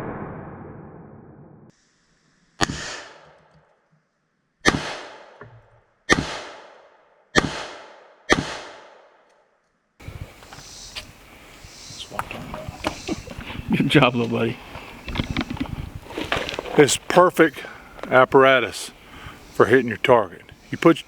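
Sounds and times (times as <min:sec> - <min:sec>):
revolver gunshots with echo: 0:02.6 - 0:03.3, 0:04.6 - 0:05.4, 0:06.1 - 0:09.2.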